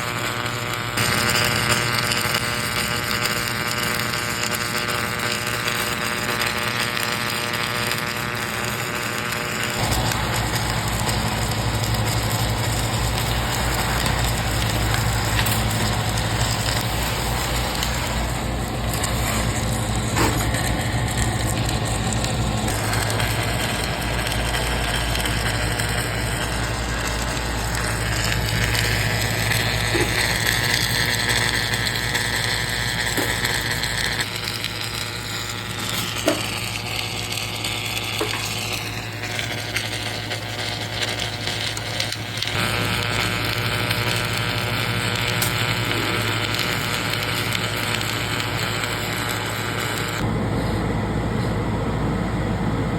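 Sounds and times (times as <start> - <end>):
machinery motor humming: 9.6 - 39.5.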